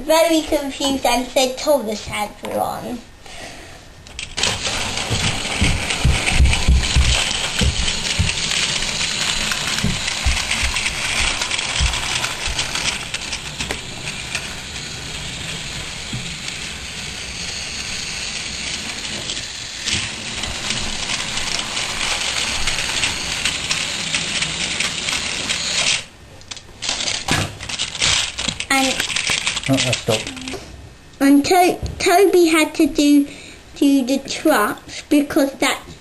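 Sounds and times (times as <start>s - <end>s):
toy trains rattling on track: 4.1s - 30.5s.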